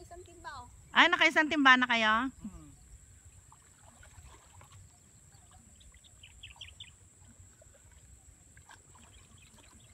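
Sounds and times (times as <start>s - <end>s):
bird chirping: 4.7s - 7.1s.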